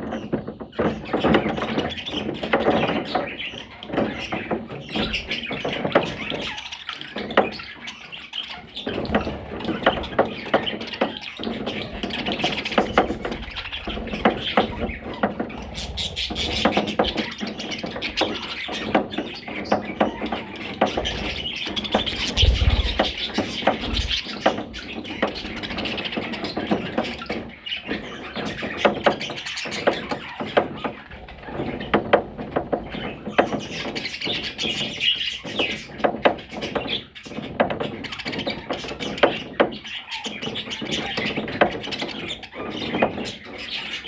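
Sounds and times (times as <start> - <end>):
budgerigars chirping: 0.0 - 32.0, 32.8 - 44.0
low thump: 22.1 - 24.2.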